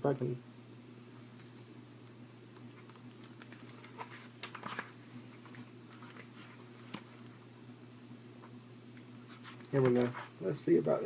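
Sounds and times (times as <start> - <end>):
low electrical hum: 0.0 - 11.0
comic book pages rustling: 2.8 - 7.2.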